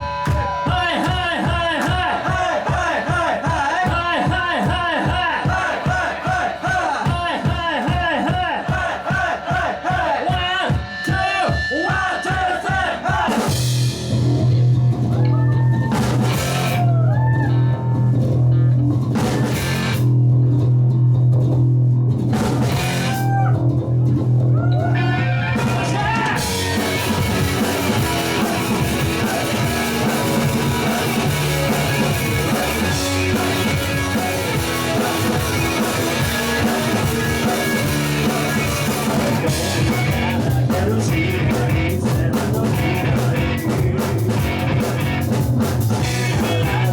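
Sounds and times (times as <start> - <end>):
rock band playing with drums: 0.0 - 46.9
sliding bending guitar notes: 14.0 - 41.9
low bass drone: 26.4 - 42.0.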